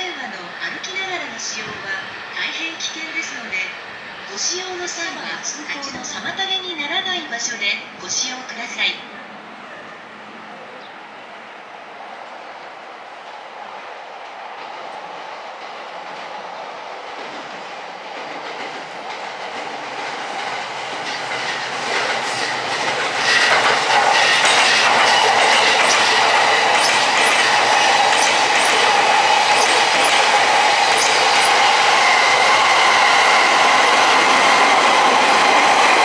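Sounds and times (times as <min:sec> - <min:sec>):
electric train approaching: 0:00.0 - 0:36.0
wheels clicking over rail joints: 0:18.2 - 0:31.7.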